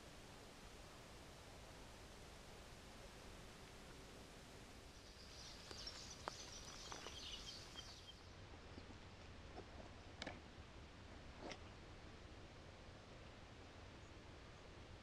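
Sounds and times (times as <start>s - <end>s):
small bird twittering: 4.9s - 8.3s
faint ticks: 5.0s - 8.0s.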